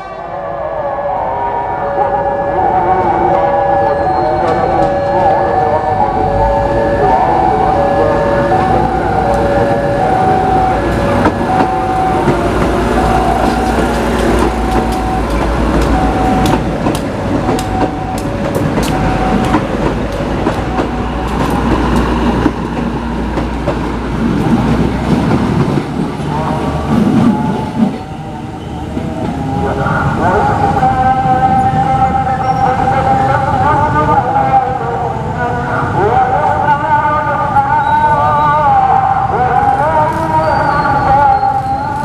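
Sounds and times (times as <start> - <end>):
train engine rumble: 1.2 - 42.0
two-note signal tone: 14.4 - 16.6.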